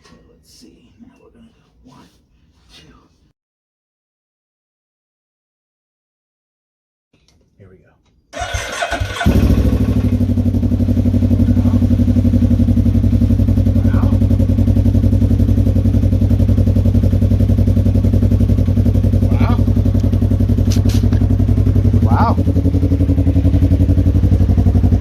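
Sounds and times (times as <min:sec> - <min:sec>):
engine cranking and catching: 0:08.3 - 0:22.6
engine idling with throbbing exhaust: 0:09.2 - 0:25.0.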